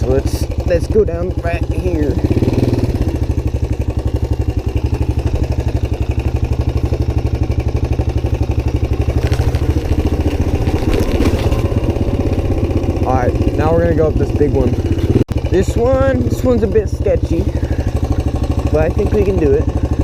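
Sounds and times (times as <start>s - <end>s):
motorcycle engine running: 0.0s - 20.0s
rough clattering noise: 9.0s - 11.9s.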